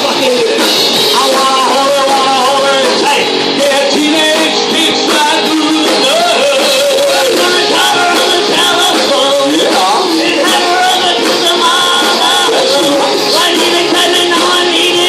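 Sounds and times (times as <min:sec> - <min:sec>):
electric guitar: 0:00.0 - 0:15.0
live rock band playing: 0:00.0 - 0:15.0
person singing: 0:00.0 - 0:15.0.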